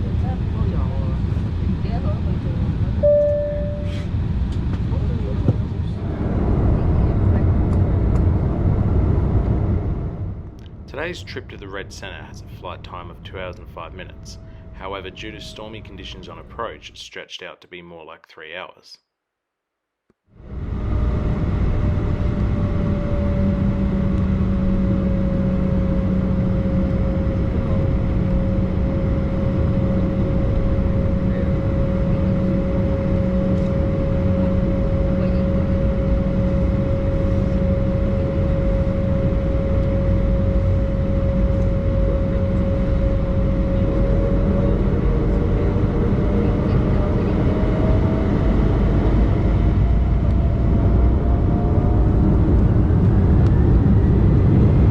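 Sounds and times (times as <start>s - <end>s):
jet engine whine: 0.0s - 17.2s, 20.3s - 54.9s
airliner cabin rush: 3.7s - 10.2s.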